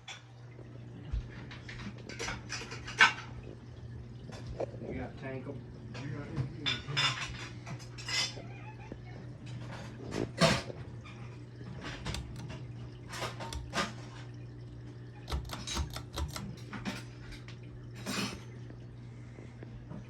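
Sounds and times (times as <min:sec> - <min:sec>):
electric fan motor humming: 0:11.2 - 0:19.4.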